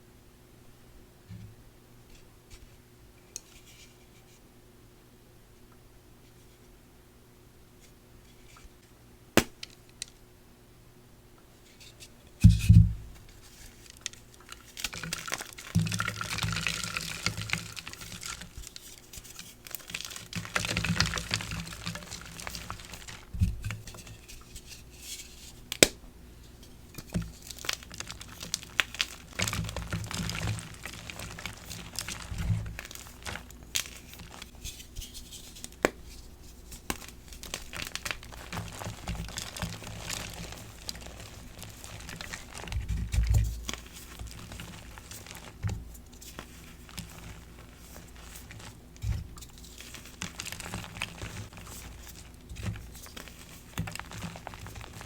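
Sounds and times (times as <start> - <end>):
chalk crumbling and crunching: 13.4 - 25.6, 27.0 - 55.0.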